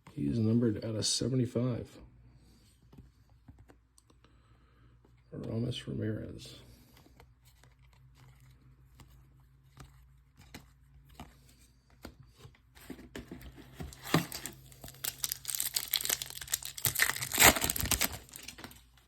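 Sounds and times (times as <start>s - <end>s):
foil wrapper tearing and crinkling: 13.9s - 18.8s.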